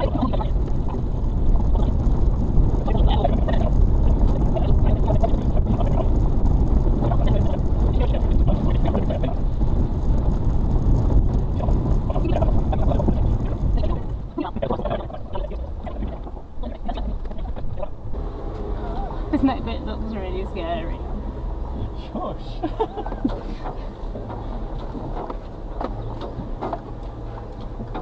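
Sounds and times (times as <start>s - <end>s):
body knocks and rattles: 0.0s - 17.9s, 22.6s - 28.0s
truck engine rumbling under load: 0.0s - 28.0s.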